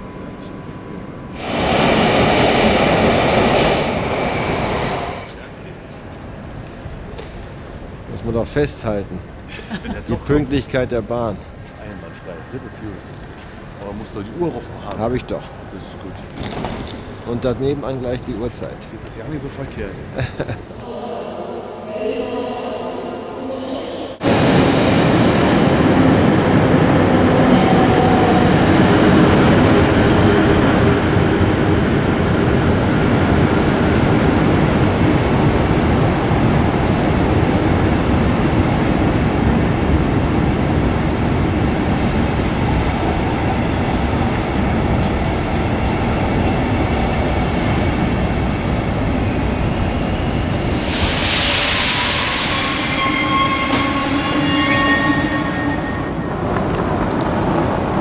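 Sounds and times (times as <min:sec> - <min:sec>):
train coaches rumbling past: 0:00.0 - 0:08.1, 0:10.1 - 0:58.0
train brakes squealing: 0:03.7 - 0:05.4, 0:48.2 - 0:56.4.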